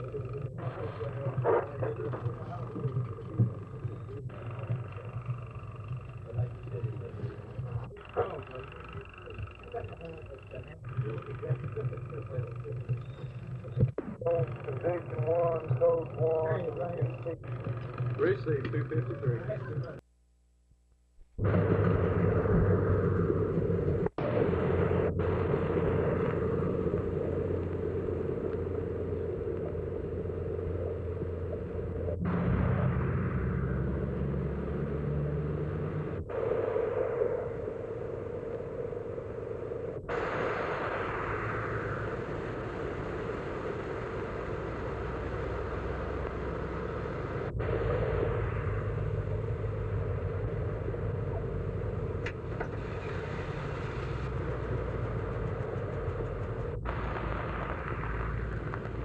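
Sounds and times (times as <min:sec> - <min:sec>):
low hum: 0:00.0 - 0:59.0
steady rumbling noise: 0:00.0 - 0:59.0.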